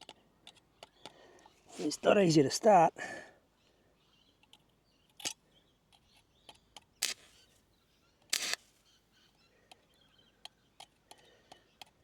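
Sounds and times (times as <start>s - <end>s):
welding arc crackling: 7.0s - 7.3s, 8.3s - 8.6s.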